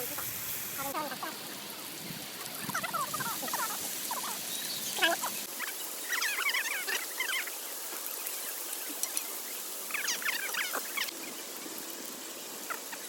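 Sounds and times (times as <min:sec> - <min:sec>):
steady background hiss: 0:00.0 - 0:13.0
small animals chirping: 0:09.9 - 0:11.1.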